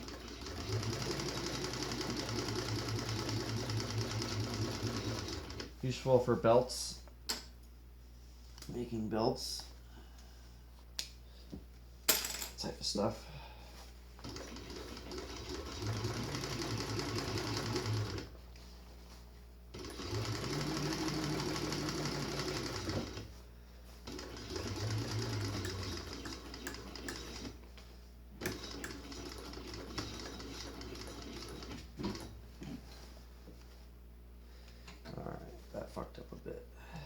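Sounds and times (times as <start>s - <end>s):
sewing machine stitching: 0.0s - 5.7s, 14.2s - 18.3s, 19.7s - 23.3s, 24.0s - 27.6s, 28.4s - 32.4s.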